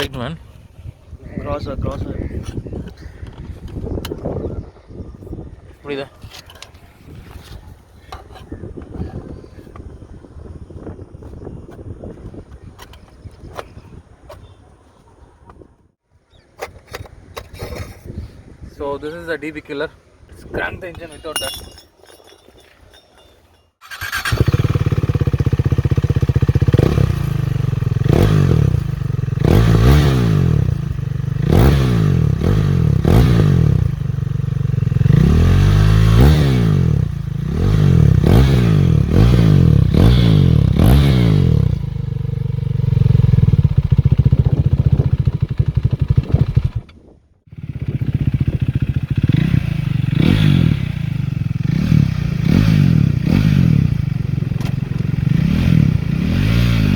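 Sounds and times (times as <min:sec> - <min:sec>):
motorcycle engine revving: 0:23.8 - 0:46.9, 0:47.5 - 0:56.9.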